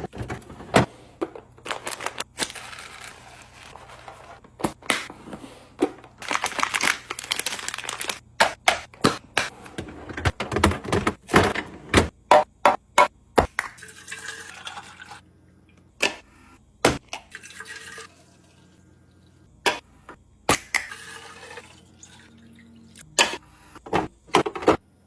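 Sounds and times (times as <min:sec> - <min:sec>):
packaging rustling: 0:01.6 - 0:04.7, 0:06.2 - 0:08.2.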